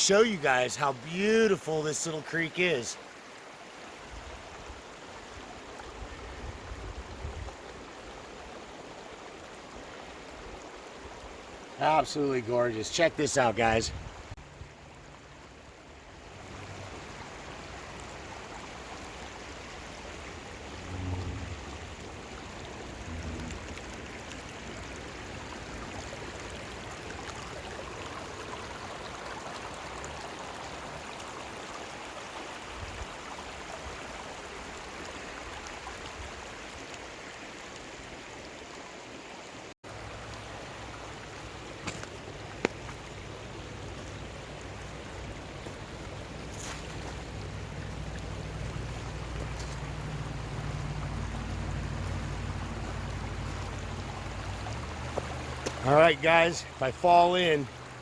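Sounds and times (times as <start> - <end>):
creek flowing over rocks: 0.0 - 58.0
short low rumbles: 20.6 - 24.5.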